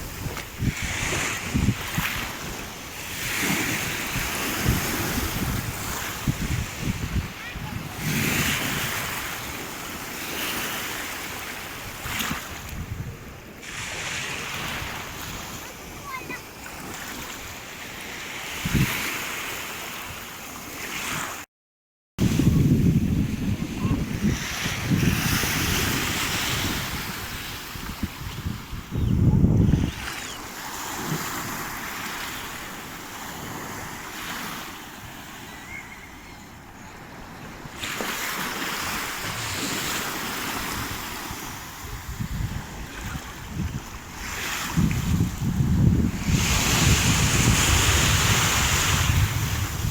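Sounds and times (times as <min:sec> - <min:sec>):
wind buffeting microphone: 0:00.0 - 0:09.6, 0:11.9 - 0:16.2, 0:22.2 - 0:30.4, 0:38.8 - 0:49.9
small waves washing ashore: 0:00.0 - 0:21.4, 0:22.2 - 0:28.9, 0:29.6 - 0:49.9.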